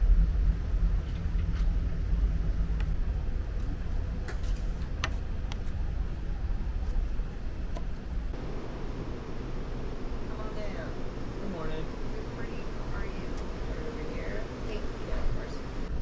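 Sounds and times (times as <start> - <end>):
train rumble from inside: 0.0 - 8.4.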